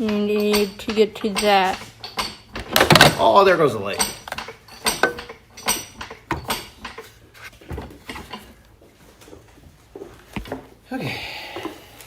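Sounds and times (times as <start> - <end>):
metal tools clanking on metal: 0.0 - 8.7.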